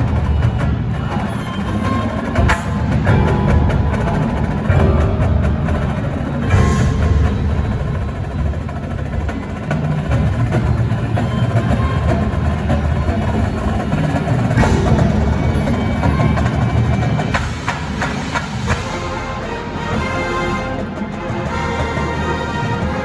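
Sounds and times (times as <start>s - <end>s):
drums: 0.0s - 23.0s
marching band playing: 2.1s - 23.0s.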